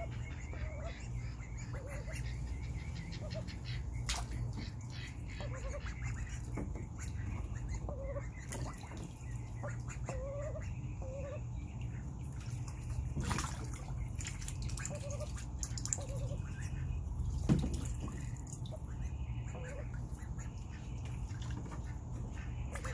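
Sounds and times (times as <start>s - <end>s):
ducks giving soft wavering calls: 0.0s - 22.9s
steady low hum: 0.0s - 22.9s
water drips and splashes: 3.8s - 7.7s, 8.4s - 10.1s, 11.6s - 22.9s.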